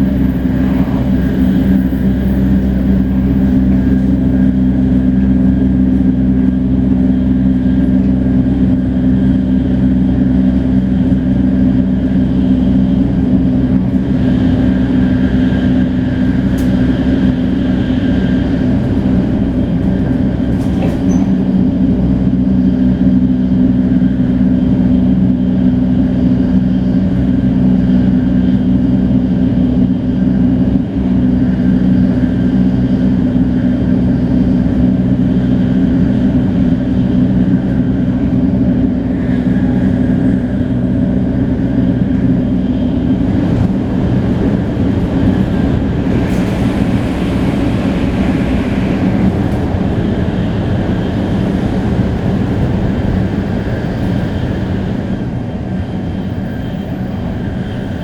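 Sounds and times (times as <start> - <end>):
broad rushing noise: 0.0 - 7.5, 34.9 - 56.2
train running at speed hum: 0.0 - 58.0.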